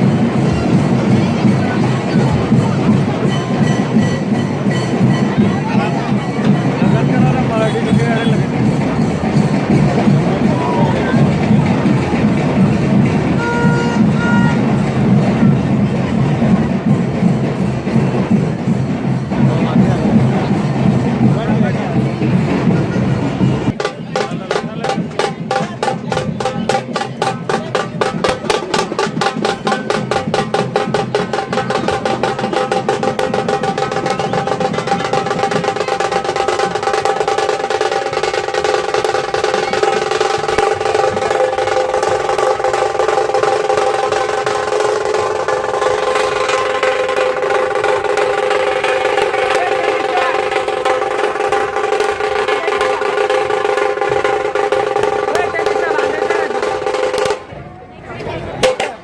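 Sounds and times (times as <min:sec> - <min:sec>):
deep drum beat: 0:00.0 - 0:57.5, 0:58.6 - 0:59.0
fast drum roll: 0:00.0 - 0:57.5, 0:58.5 - 0:59.0.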